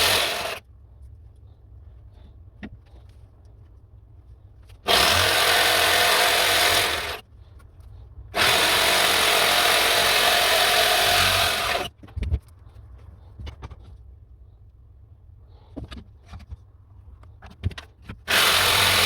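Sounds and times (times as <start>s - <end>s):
power tool cutting wood: 0.0s - 0.6s, 4.9s - 7.2s, 8.4s - 11.9s, 18.3s - 19.0s.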